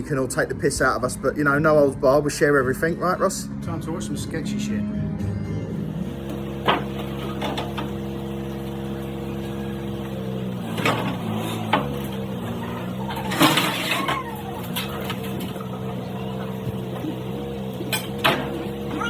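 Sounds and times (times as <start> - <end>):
engine idling: 5.7 - 19.0.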